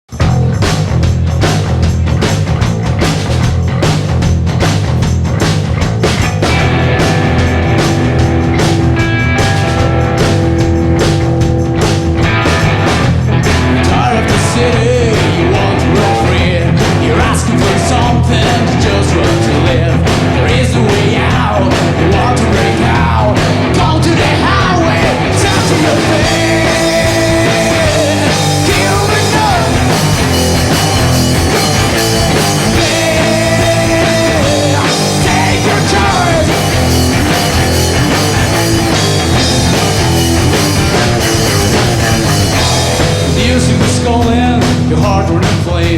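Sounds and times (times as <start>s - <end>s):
bass guitar: 0.0s - 45.9s
drums: 0.0s - 45.9s
electric guitar: 0.1s - 45.9s
person singing: 13.6s - 37.5s, 43.2s - 45.9s.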